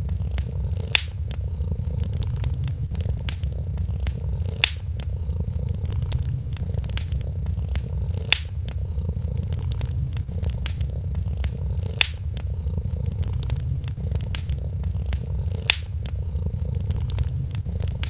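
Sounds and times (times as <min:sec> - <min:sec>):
cat purring: 0:00.0 - 0:18.0
fire popping: 0:00.0 - 0:18.0
wood fire crackling: 0:00.0 - 0:18.0.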